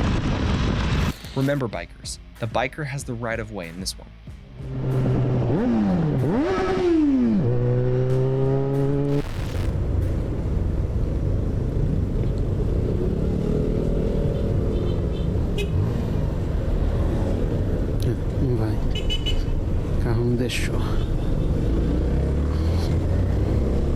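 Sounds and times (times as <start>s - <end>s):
wind and road noise: 0.0s - 1.6s, 4.4s - 23.9s
motorcycle engine revving: 4.5s - 18.0s, 21.4s - 23.9s.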